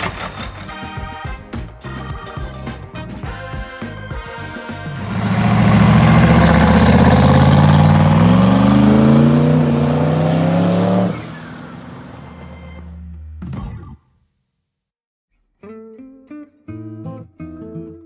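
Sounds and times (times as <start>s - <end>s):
car engine accelerating: 0.0s - 0.8s, 4.9s - 13.2s.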